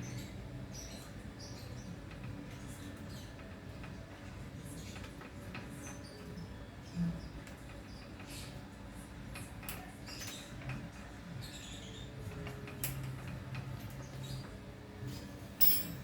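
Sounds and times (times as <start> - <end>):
tools and bicycle parts clicking: 15.6 - 16.0.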